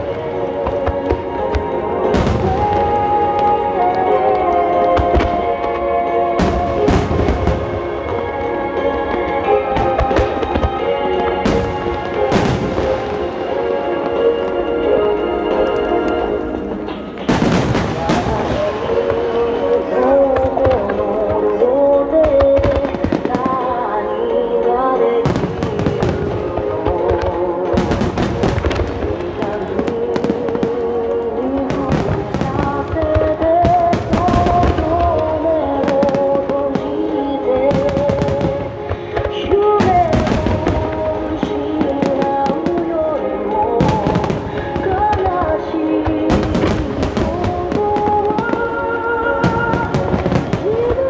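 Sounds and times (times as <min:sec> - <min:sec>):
song over loudspeakers: 0:00.0 - 0:51.0.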